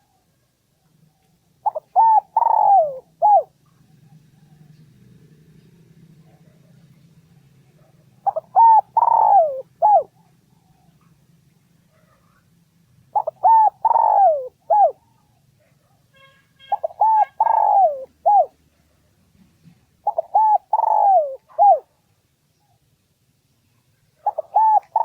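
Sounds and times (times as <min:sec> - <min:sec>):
dove cooing: 0:01.6 - 0:04.8, 0:07.7 - 0:11.0, 0:13.1 - 0:15.4, 0:16.7 - 0:18.6, 0:20.0 - 0:21.9, 0:24.2 - 0:25.0.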